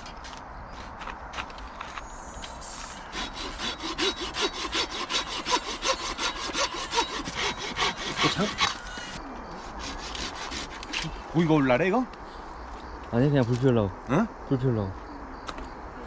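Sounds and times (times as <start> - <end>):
hand saw cutting firewood: 3.1 - 11.5.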